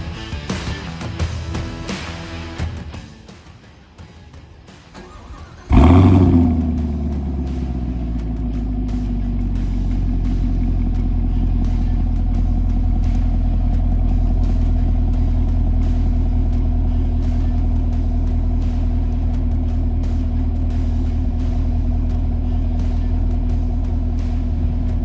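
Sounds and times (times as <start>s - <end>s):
car engine running steadily: 5.6s - 25.0s.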